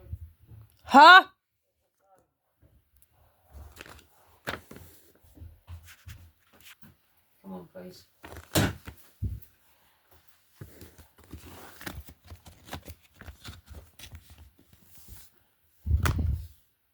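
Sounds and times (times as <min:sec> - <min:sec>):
packaging rustling with clicks: 0:03.6 - 0:05.0, 0:08.2 - 0:09.0, 0:10.6 - 0:15.0.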